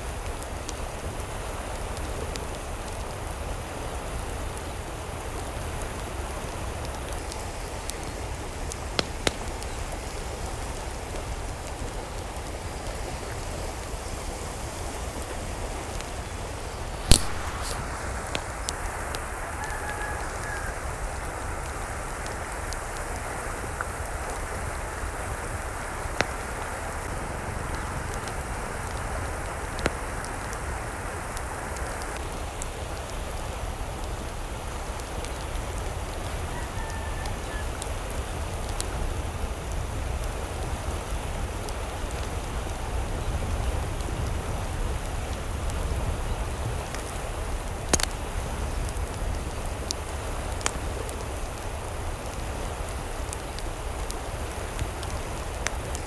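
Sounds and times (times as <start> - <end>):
steady rain: 0.0 - 56.0
sharp clicks: 17.1 - 18.8.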